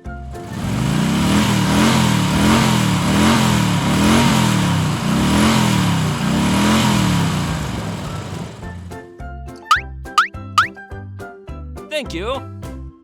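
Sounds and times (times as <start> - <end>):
engine pitch rising and falling: 0.5 - 8.7.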